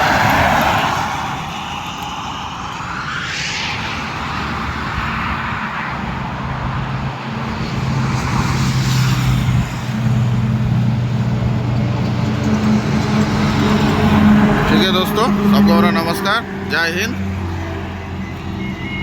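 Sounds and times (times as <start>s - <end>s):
highway road noise: 0.0s - 19.0s
passing vehicle whoosh: 0.0s - 19.0s
heavy vehicle engine hum: 6.0s - 19.0s.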